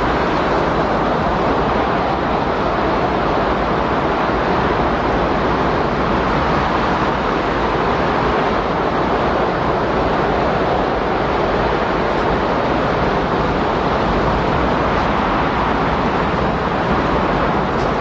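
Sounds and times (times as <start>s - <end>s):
loud rushing wind: 0.0s - 18.0s.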